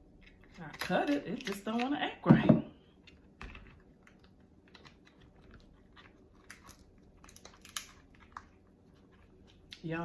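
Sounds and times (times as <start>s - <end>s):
crab shell clicks and crackles: 3.0s - 9.8s.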